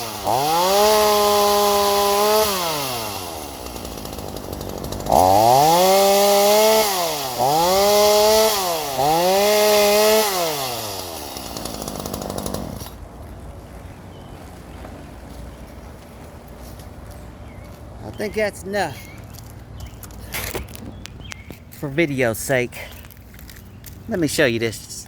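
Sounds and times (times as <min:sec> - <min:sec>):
chainsaw engine revving: 0:00.0 - 0:13.0.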